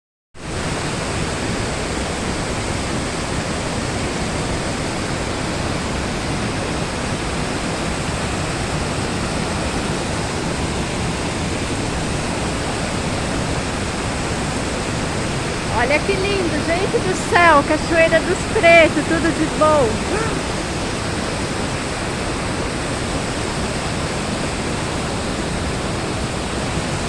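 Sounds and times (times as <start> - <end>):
waterfall roaring: 6.9 - 21.0.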